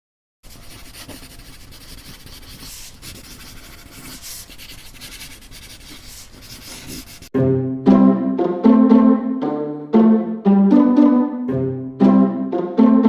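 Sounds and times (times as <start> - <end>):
soft rubbing and scratching: 0.5 - 7.3.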